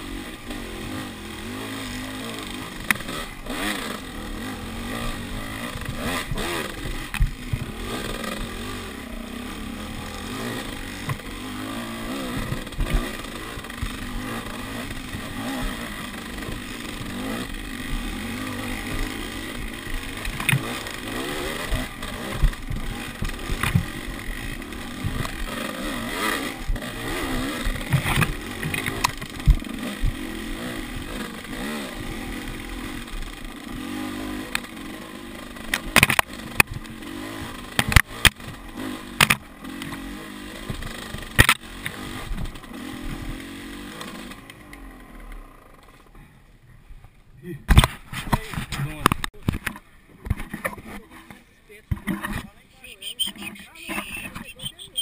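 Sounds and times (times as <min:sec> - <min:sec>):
dirt bike engine revving: 0:00.0 - 0:46.4, 0:47.7 - 0:55.0
sharp knocks and clatter: 0:20.2 - 0:20.9, 0:21.6 - 0:24.0, 0:27.6 - 0:30.2, 0:35.7 - 0:36.8, 0:40.6 - 0:42.6.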